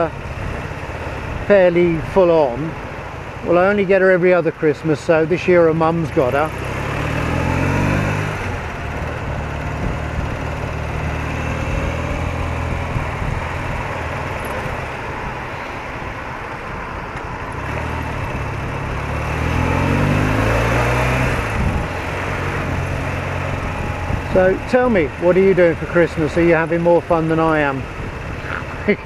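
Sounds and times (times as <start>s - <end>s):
wind and road rush: 0.0s - 29.0s
motorcycle engine running: 5.9s - 15.3s, 17.5s - 29.0s.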